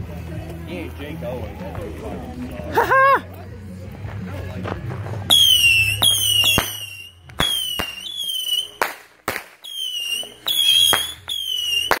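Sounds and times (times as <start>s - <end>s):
firework shells bursting: 5.3s - 12.0s
firework whistles: 5.3s - 12.0s.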